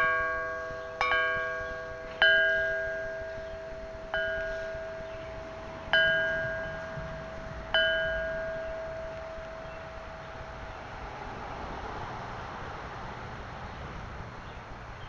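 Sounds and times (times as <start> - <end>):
metal chime ringing: 0.0 - 10.5.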